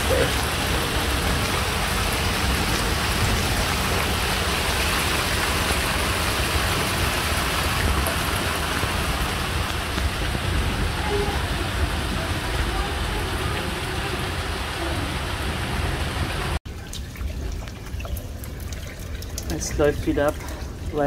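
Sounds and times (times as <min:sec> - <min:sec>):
heavy rain hissing: 0:00.0 - 0:16.6.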